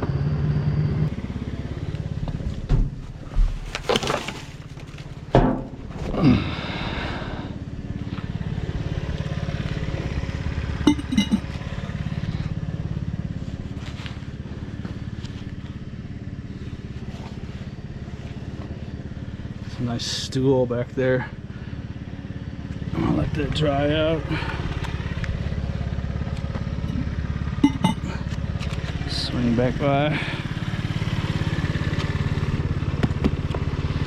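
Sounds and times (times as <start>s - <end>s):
truck engine running: 0.0s - 34.0s
knocks and clatter: 2.6s - 6.0s.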